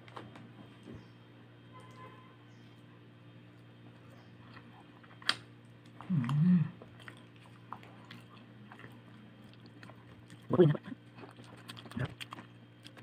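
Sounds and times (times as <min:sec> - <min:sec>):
chewing and biting soft food: 0:03.5 - 0:13.0
low hummed vocal sound: 0:05.8 - 0:13.0.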